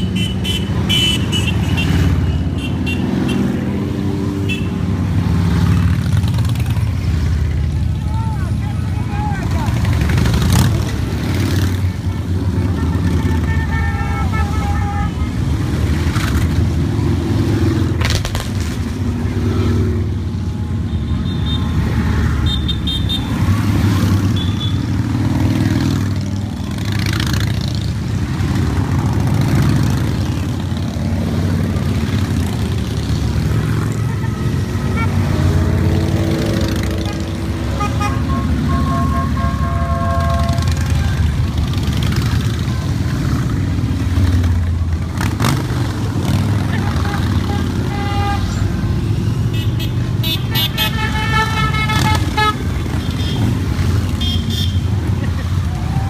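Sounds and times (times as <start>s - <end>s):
motorcycle horns tooting: 0.0s - 3.6s, 4.3s - 4.9s, 9.0s - 16.0s, 20.8s - 26.2s, 32.2s - 43.6s, 46.2s - 56.0s
motorcycle engines rumbling: 0.0s - 56.0s.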